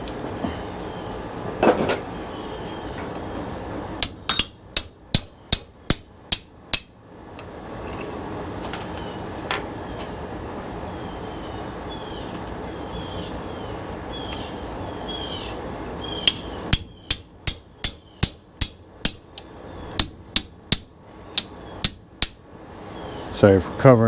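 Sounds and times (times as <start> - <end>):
hammer striking metal: 4.0 - 7.0, 16.3 - 22.5.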